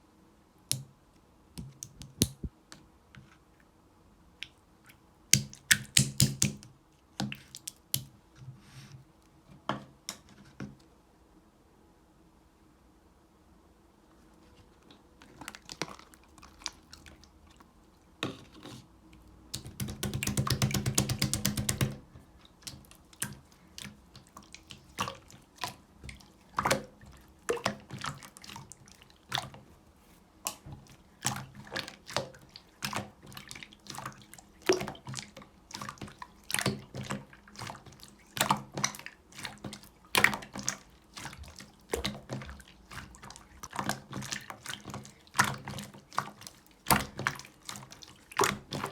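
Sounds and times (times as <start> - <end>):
slime wet clicks and pops: 5.4 - 6.6.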